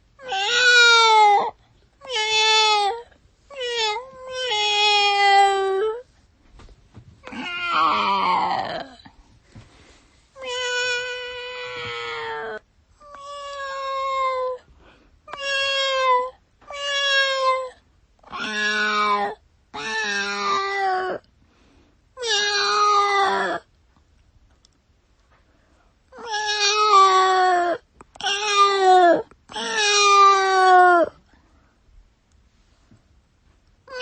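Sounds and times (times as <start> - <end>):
cat meowing: 0.2 - 6.0, 7.2 - 9.0, 10.4 - 14.6, 15.3 - 21.2, 22.2 - 23.6, 26.1 - 31.2.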